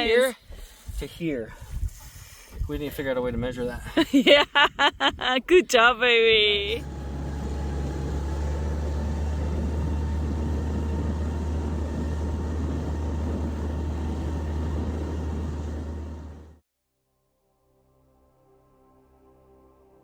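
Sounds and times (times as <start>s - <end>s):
outboard motor rumbling: 6.4s - 16.6s.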